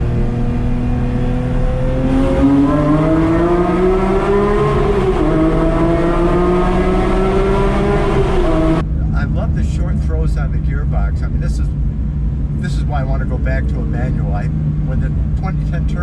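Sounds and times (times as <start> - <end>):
sports car engine revving: 0.0 - 9.6.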